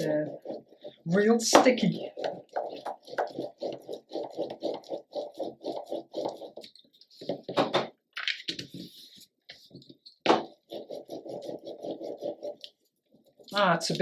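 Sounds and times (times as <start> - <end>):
paper rustling and scraping: 8.4 - 13.6.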